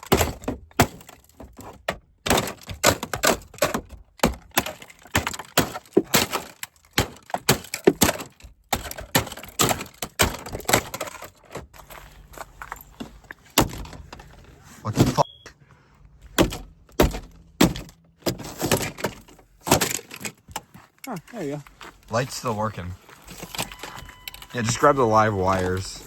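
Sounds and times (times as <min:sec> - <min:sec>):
hard plastic cracking under blows: 0:00.0 - 0:11.8.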